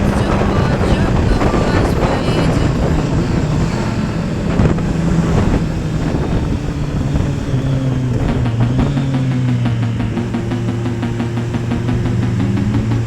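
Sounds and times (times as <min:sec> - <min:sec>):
wind buffeting microphone: 0:00.0 - 0:09.3
motorcycle engine running: 0:00.0 - 0:13.0.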